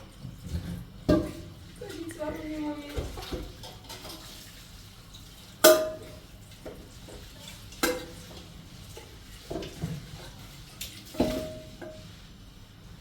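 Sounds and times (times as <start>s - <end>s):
metal cookware clanking: 5.6s - 6.2s.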